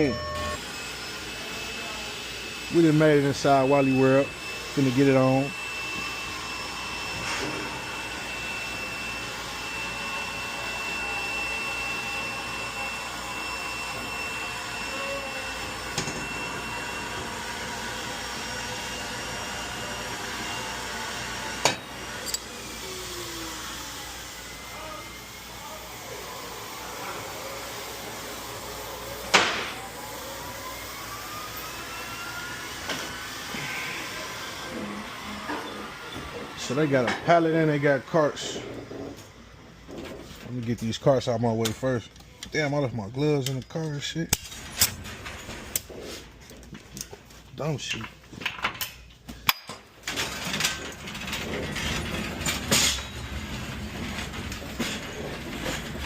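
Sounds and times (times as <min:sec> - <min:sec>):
cart rattling on casters: 0:50.1 - 0:56.0.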